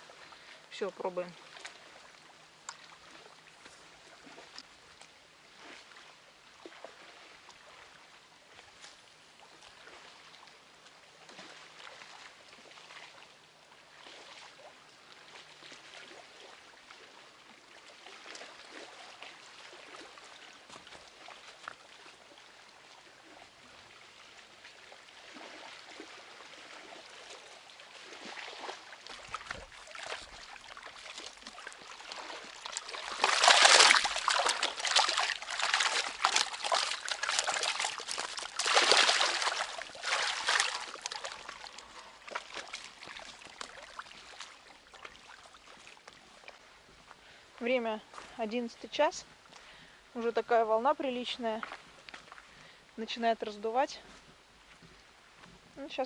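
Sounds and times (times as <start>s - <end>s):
river water lapping: 0.0s - 56.0s
small water splashes: 0.0s - 56.0s.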